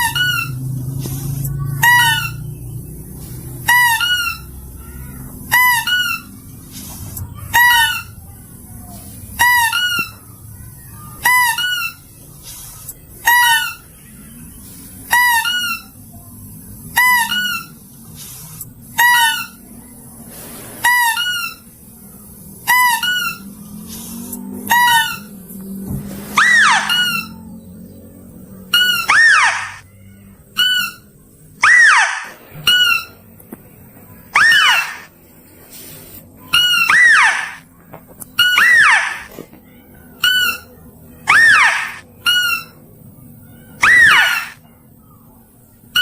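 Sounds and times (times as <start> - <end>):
shrill two-part lure call: 26.4 - 27.4, 28.8 - 29.8, 31.6 - 33.1, 34.3 - 35.1, 36.6 - 37.6, 38.4 - 39.3, 41.3 - 42.7, 43.8 - 44.6.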